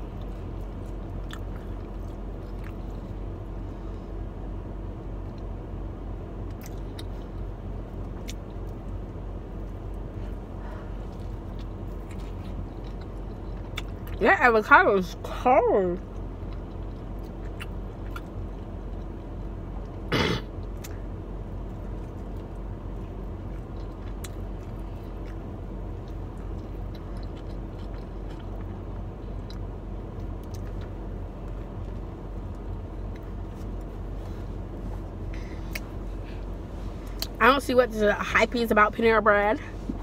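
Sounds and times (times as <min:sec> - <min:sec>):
person chewing food: 0:00.0 - 0:03.3, 0:11.0 - 0:14.2, 0:16.1 - 0:20.0, 0:21.7 - 0:37.4
steady low hum: 0:00.0 - 0:40.0.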